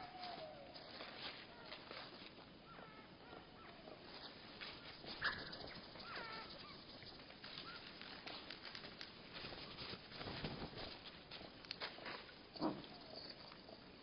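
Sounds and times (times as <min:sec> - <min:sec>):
slowed songbird calls: 0:04.8 - 0:07.8.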